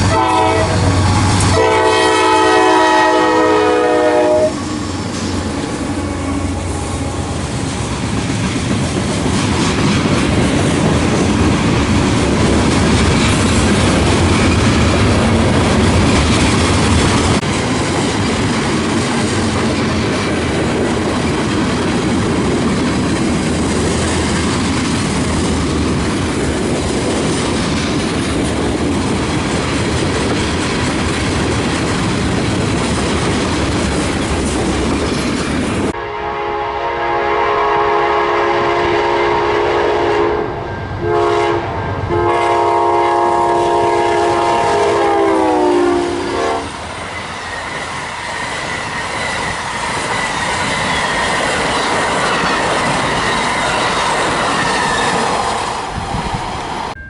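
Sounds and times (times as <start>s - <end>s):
locomotive air horn blasts: 0.0s - 4.7s, 35.9s - 46.8s
train wheels rolling on rails: 0.0s - 36.5s, 37.1s - 57.0s.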